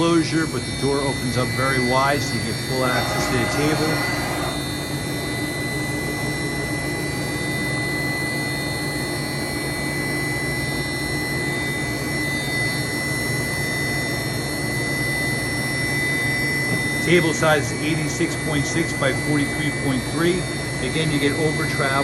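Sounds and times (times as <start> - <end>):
machine spindle hum: 0.0 - 10.0.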